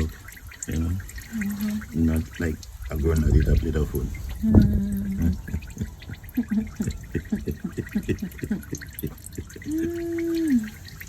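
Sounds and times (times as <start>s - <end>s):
oil dripping into a pan: 0.0s - 11.0s.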